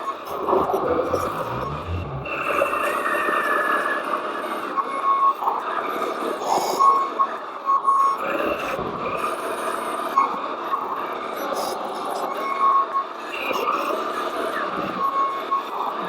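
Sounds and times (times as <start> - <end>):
reversing beeper: 0.3 - 3.1
small motors and gears running: 0.4 - 2.9.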